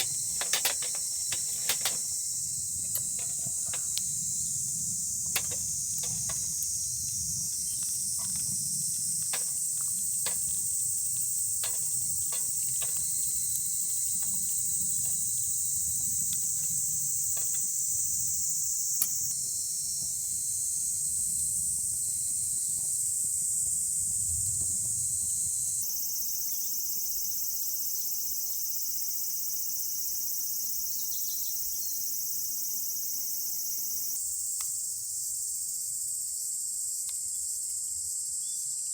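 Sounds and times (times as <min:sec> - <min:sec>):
sharp clicks: 0:00.0 - 0:02.2, 0:05.3 - 0:15.3
insects chirping: 0:00.0 - 0:38.9.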